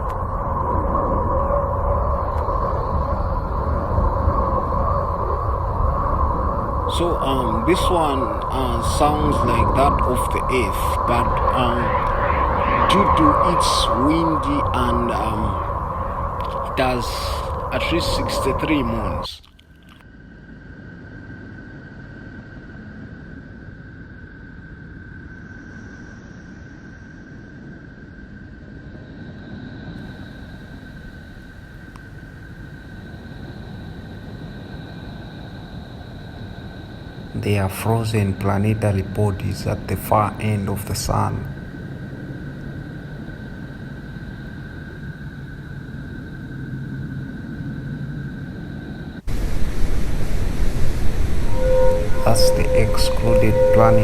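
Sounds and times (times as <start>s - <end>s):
low rumbling hiss: 0.0s - 19.4s, 30.2s - 54.0s
steady high tone: 6.9s - 19.4s, 49.3s - 54.0s.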